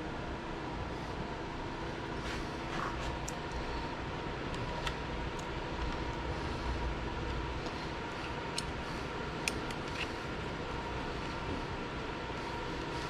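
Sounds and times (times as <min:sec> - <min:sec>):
low hum of machinery: 0:00.0 - 0:13.0.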